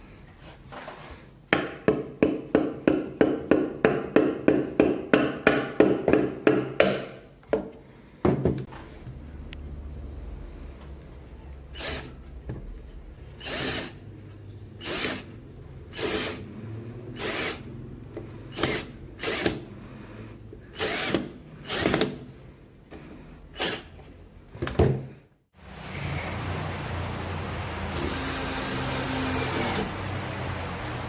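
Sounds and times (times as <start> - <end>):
power drill whirring: 11.7 - 12.2, 13.4 - 14.0, 14.8 - 16.5, 17.2 - 17.8, 18.5 - 19.7, 20.7 - 22.1, 23.6 - 24.0, 25.9 - 30.9.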